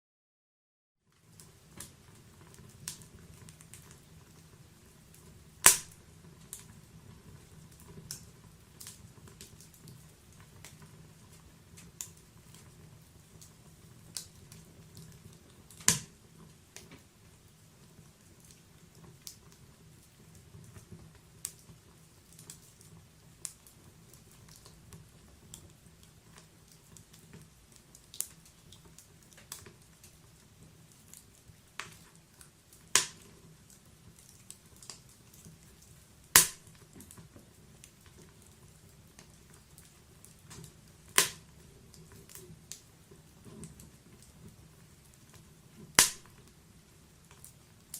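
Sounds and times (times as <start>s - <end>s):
wood crackling in fireplace: 1.0s - 47.9s
loud sharp pops: 5.6s - 6.0s, 15.8s - 16.1s, 32.9s - 33.2s, 36.3s - 36.7s, 41.2s - 41.4s, 46.0s - 46.3s.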